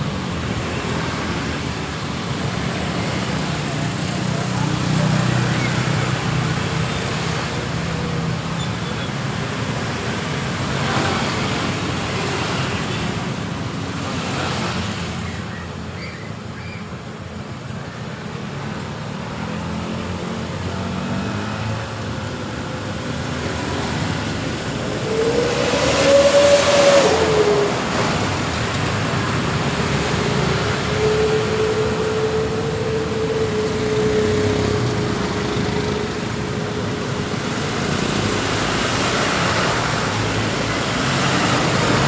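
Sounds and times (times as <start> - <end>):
road traffic passing: 0.0 - 42.0
loud vehicle passing close: 22.9 - 42.0.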